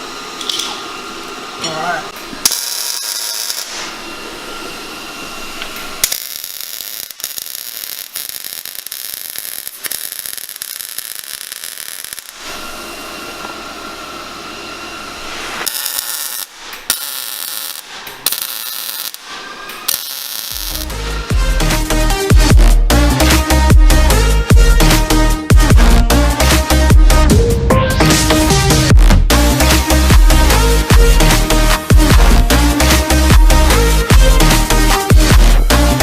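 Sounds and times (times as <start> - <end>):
arc welding crackle and buzz: 0.0 - 21.3.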